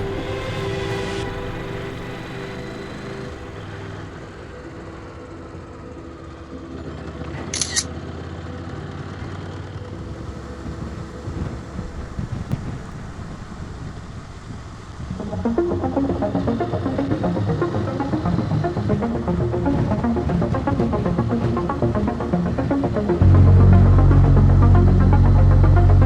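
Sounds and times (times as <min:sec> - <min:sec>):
motorcycle riding along road: 0:00.0 - 0:15.5.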